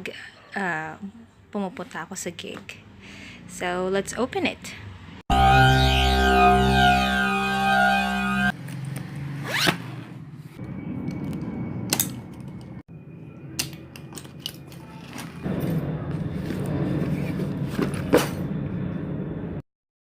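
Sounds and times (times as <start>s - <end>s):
background music: 5.3s - 8.5s
zipper opening: 9.4s - 10.1s.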